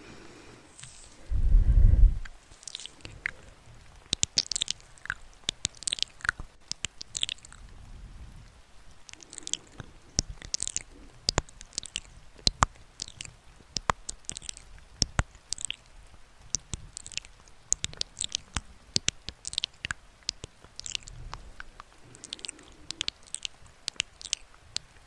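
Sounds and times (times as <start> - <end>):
crisp high rustling: 0.0 - 7.6.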